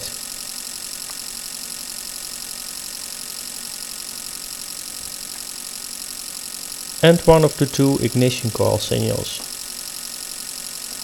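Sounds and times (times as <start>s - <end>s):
steady hiss: 6.9s - 9.6s.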